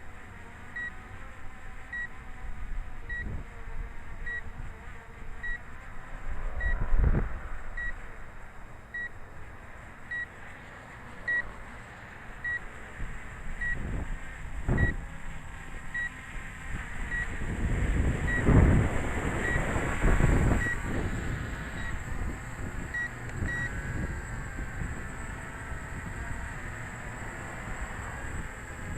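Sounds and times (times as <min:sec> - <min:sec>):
high electronic warning beep: 0:00.8 - 0:01.0, 0:01.9 - 0:02.2, 0:03.1 - 0:03.4, 0:05.4 - 0:05.7, 0:06.6 - 0:06.9, 0:07.8 - 0:08.0, 0:08.9 - 0:09.2, 0:10.1 - 0:10.3, 0:11.3 - 0:11.5, 0:12.4 - 0:12.6, 0:13.6 - 0:13.9, 0:14.8 - 0:15.0, 0:15.9 - 0:16.2, 0:17.1 - 0:17.4, 0:18.3 - 0:18.6, 0:19.4 - 0:19.8, 0:20.5 - 0:20.8, 0:21.7 - 0:22.1, 0:22.9 - 0:23.8
strong wind buffeting microphone: 0:06.2 - 0:08.4, 0:12.9 - 0:28.9.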